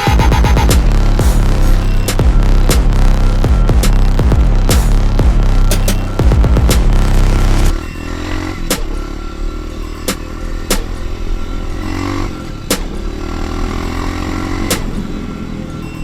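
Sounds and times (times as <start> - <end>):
sharp clacks: 0.0 - 7.8, 8.7 - 9.1, 12.7 - 13.0, 14.7 - 15.1
dirt bike engine revving: 0.0 - 16.0.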